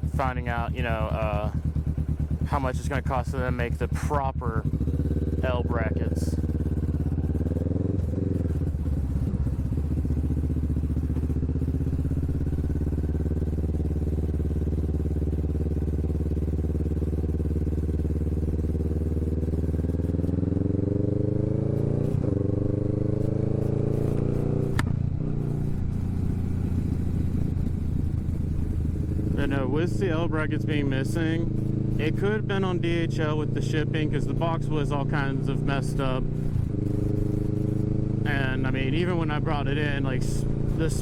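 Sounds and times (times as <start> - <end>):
motorcycle engine accelerating: 0.0 - 41.0
sharp click: 23.2 - 25.0.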